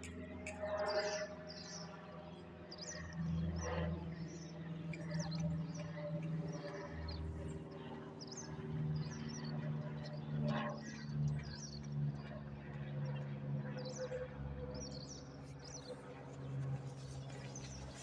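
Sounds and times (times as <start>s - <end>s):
small birds chirping: 14.8s - 18.0s.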